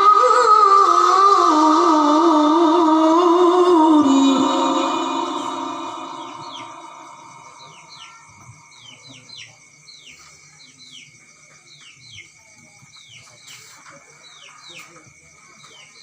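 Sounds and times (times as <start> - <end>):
person singing recitation: 0.0 - 8.1
faint steady high tone: 0.0 - 9.3
small bird chirping: 4.7 - 12.3.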